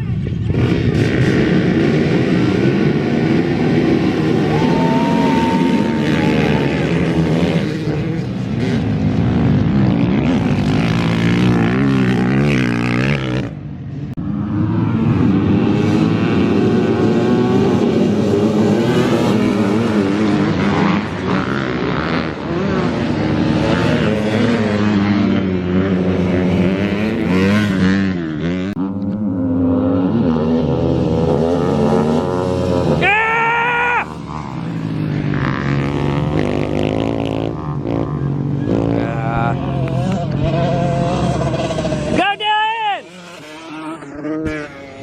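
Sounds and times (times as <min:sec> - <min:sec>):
dirt bike engines revving: 0:00.0 - 0:45.0.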